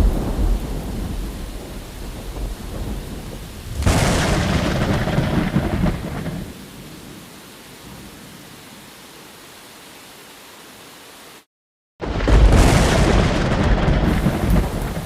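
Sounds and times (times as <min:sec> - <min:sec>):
sharp thunder crack: 0:00.0 - 0:06.5, 0:12.0 - 0:15.0
thunder rumble: 0:00.0 - 0:06.6, 0:12.0 - 0:15.0.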